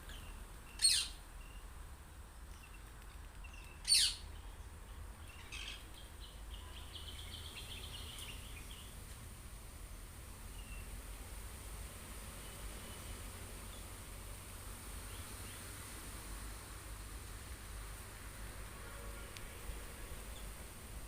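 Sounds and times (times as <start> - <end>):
high bird chirps: 0.1 - 1.6, 3.5 - 4.2
parakeets calling: 0.7 - 1.2, 3.5 - 4.2, 5.2 - 5.8.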